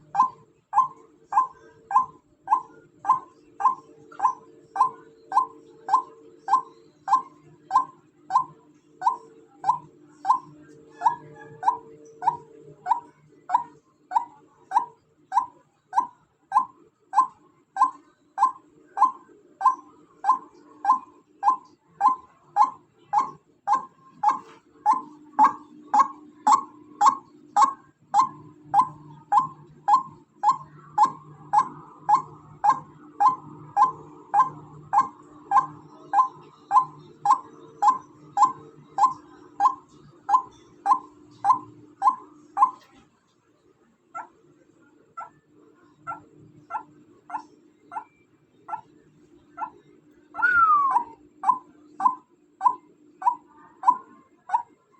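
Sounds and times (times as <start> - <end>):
waterhen calling: 50.4 - 54.6.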